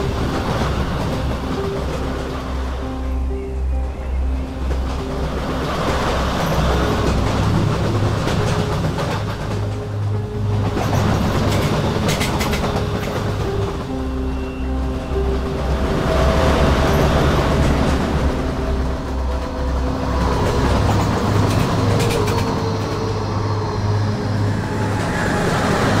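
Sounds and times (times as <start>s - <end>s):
background music: 0.0s - 26.0s
train wheels rumbling: 0.0s - 26.0s
wheels clickety-clack: 5.7s - 9.9s, 10.5s - 13.9s, 16.8s - 23.1s.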